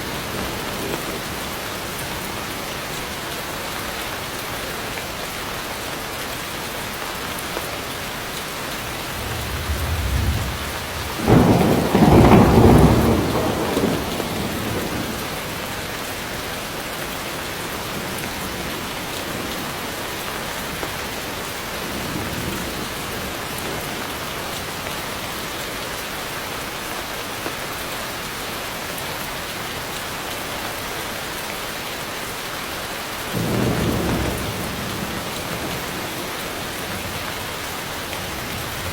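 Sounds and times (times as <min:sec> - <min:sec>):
heavy rain: 0:00.0 - 0:38.9
thunder rumbling: 0:08.6 - 0:15.7, 0:33.4 - 0:38.9
thunderclap: 0:08.8 - 0:15.3.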